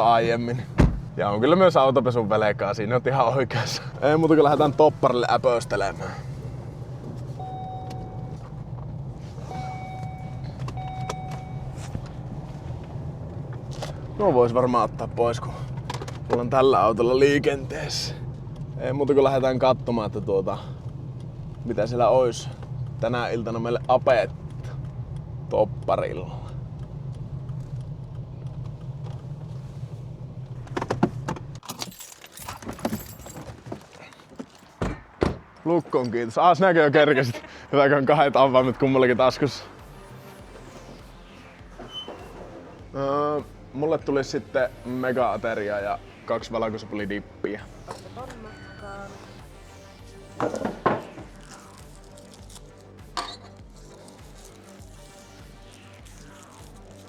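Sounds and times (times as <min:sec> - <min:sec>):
car rumble inside cabin: 0:00.0 - 0:31.6
vehicle engine idling: 0:00.0 - 0:31.6
electronic warning chime beeps: 0:07.4 - 0:08.4, 0:09.5 - 0:12.0, 0:47.6 - 0:50.3
keys jangling and clicking: 0:31.6 - 0:34.8.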